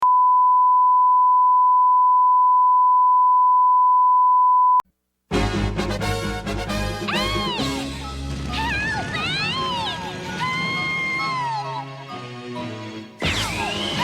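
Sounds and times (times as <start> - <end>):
loud music: 5.3 - 14.0.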